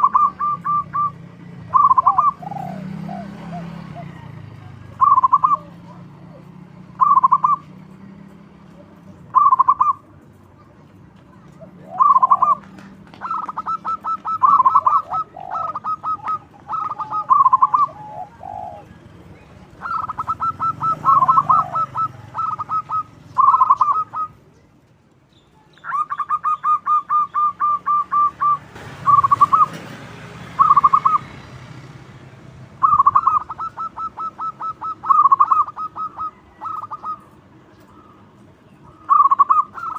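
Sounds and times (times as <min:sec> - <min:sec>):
dove cooing: 0:00.0 - 0:08.0, 0:08.6 - 0:10.2, 0:11.4 - 0:24.6, 0:25.8 - 0:31.9, 0:32.8 - 0:39.9.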